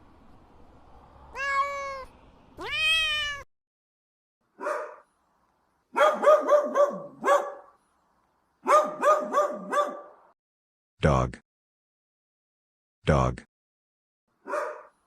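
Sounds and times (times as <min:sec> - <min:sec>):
cat meowing: 0:01.3 - 0:03.5
dog barking: 0:04.6 - 0:05.1, 0:05.9 - 0:07.8, 0:08.6 - 0:10.3, 0:14.4 - 0:15.0.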